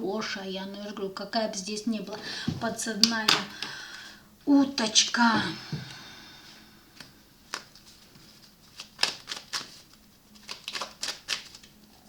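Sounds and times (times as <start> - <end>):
cards clicking and tapping: 7.0 - 7.9, 8.7 - 11.7.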